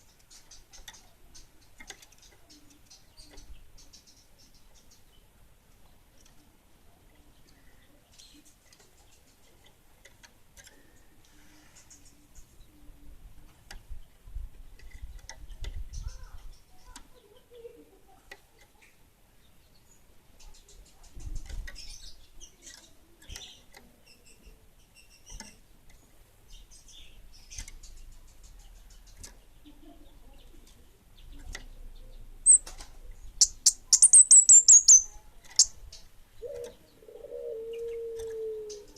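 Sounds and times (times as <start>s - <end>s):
songbird chirping and trilling: 0.0s - 38.9s
sharp clicks: 32.5s - 35.8s.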